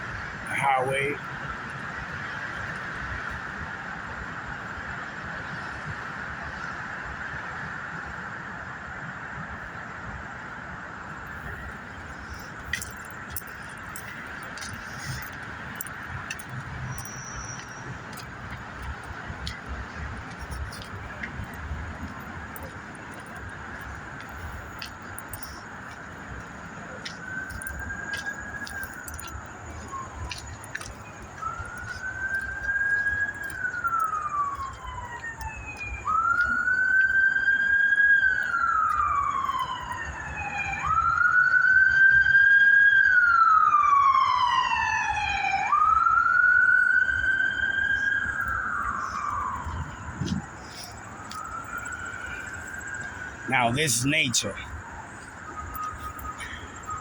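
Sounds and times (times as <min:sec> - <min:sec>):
emergency siren wailing: 0:00.0 - 0:57.0.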